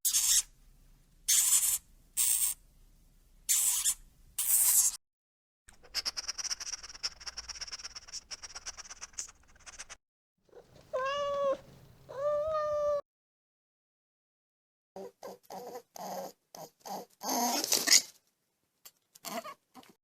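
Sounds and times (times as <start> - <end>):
cat meowing: 10.6 - 13.0.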